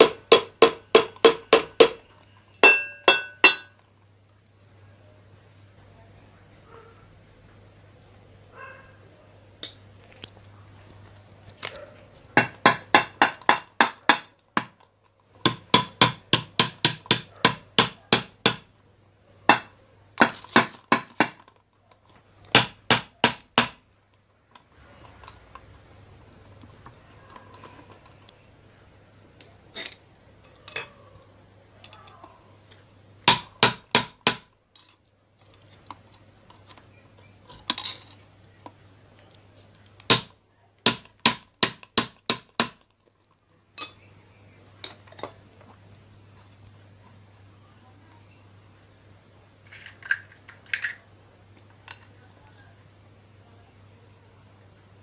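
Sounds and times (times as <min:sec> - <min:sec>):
hammer tapping on metal: 0:00.0 - 0:03.8, 0:12.4 - 0:14.8, 0:15.4 - 0:18.7, 0:19.5 - 0:21.4, 0:33.2 - 0:34.5, 0:40.1 - 0:42.8.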